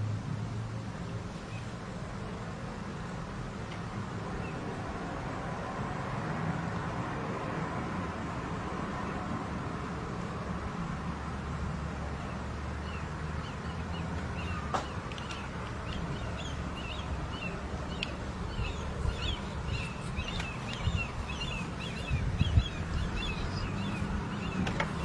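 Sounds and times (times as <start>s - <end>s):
small birds chirping: 12.0s - 25.0s
steady low rumble: 15.4s - 24.4s.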